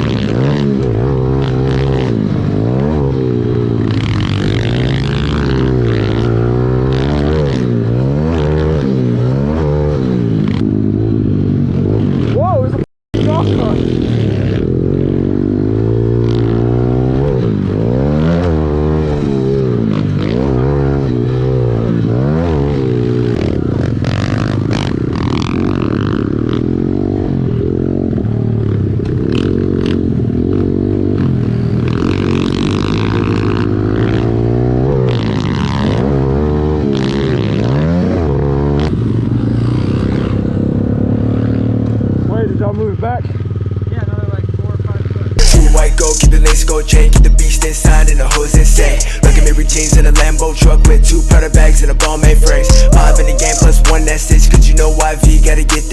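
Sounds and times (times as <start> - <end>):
dirt bike engine revving: 0.0 - 43.9, 45.4 - 55.9
steady engine drone: 45.4 - 55.9.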